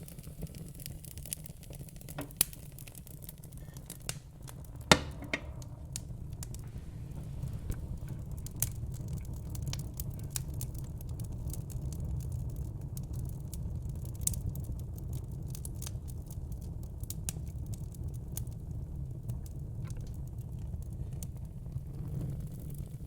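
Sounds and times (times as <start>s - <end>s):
fire crackling: 0.0s - 23.0s.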